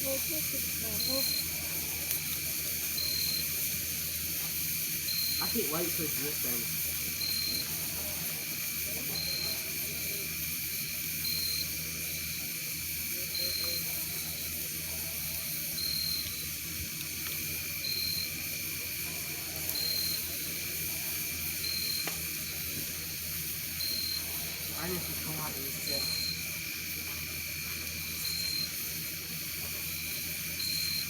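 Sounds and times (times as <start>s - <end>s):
insect high trill: 0.0s - 31.0s
insect short high chirp: 0.9s - 1.6s, 2.9s - 3.7s, 5.0s - 5.6s, 7.1s - 7.8s, 9.1s - 9.8s, 15.7s - 16.6s, 19.8s - 20.4s, 25.8s - 26.6s, 28.0s - 28.9s, 29.9s - 31.0s.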